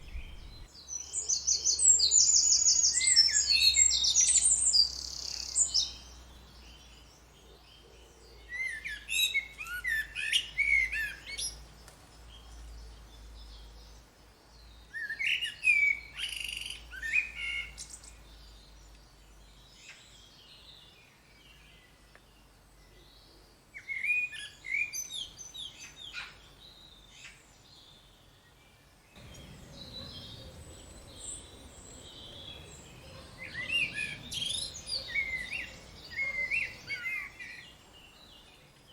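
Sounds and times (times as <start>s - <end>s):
songbird singing warbled phrases: 0.0s - 7.0s, 29.2s - 38.9s
soft bird chirps: 0.0s - 28.3s, 29.2s - 38.9s
steady background hiss: 25.0s - 38.9s.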